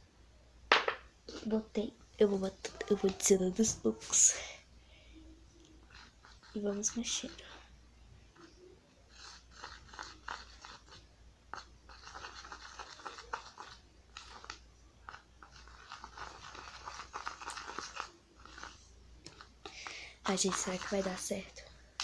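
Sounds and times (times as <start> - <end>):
glue mixture stirred with utensil: 5.2 - 7.7, 8.3 - 22.0.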